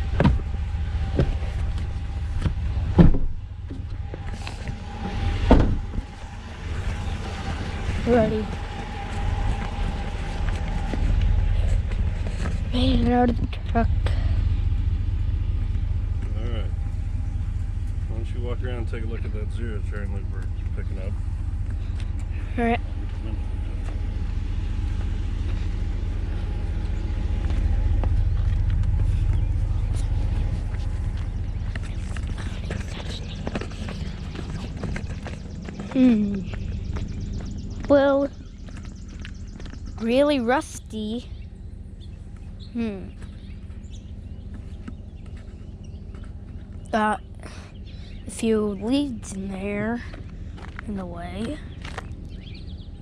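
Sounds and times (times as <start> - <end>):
knocks and thuds on truck: 0.0 - 4.2, 5.4 - 6.1
steady low rumble: 0.0 - 53.0
vehicle engine running: 0.0 - 53.0.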